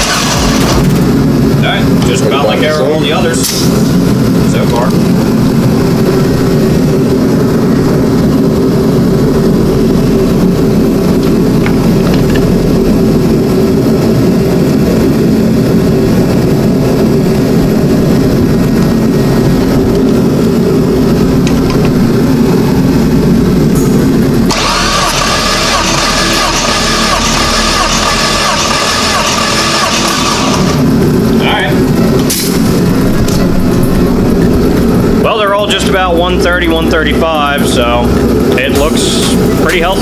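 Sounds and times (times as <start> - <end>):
engine cranking without firing: 0.0 - 1.1, 24.5 - 30.8.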